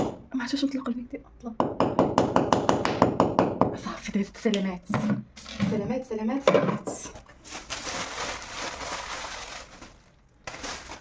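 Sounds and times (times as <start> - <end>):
rustling: 7.2 - 11.0.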